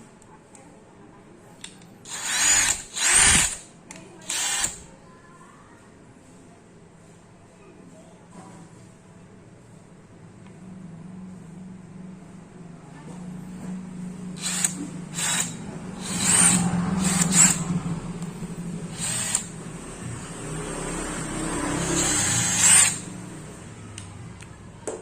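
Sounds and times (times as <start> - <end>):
cordless drill running: 2.1 - 3.6, 4.2 - 4.8, 14.4 - 17.6, 18.9 - 19.5, 21.8 - 23.1.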